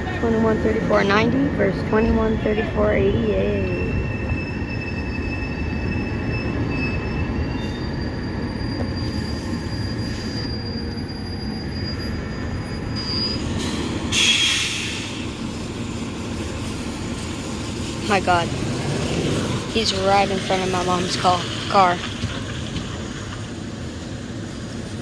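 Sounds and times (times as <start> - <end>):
truck brakes squealing: 3.6 - 15.6
diesel engine rumble: 13.5 - 25.0
air hiss: 13.6 - 16.4.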